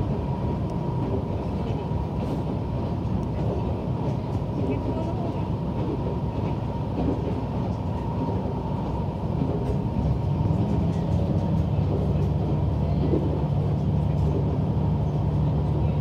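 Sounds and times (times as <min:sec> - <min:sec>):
wheel and rail noise: 0:00.0 - 0:16.0
diesel engine drone: 0:06.6 - 0:16.0.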